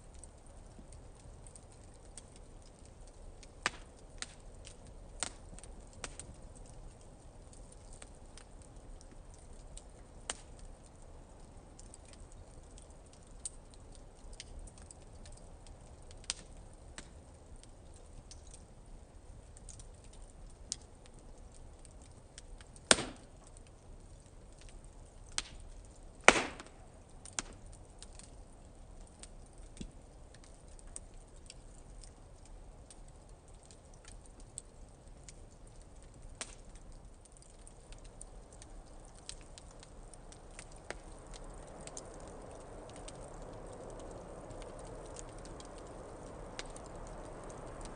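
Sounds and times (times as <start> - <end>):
wood fire crackling: 0.0 - 47.9
loud fire pops: 3.4 - 4.5, 22.4 - 23.6, 25.2 - 28.3.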